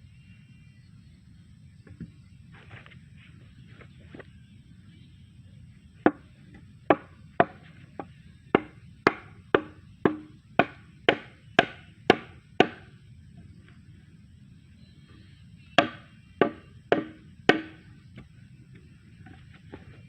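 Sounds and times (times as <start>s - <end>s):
hand tool striking: 15.8s - 17.8s.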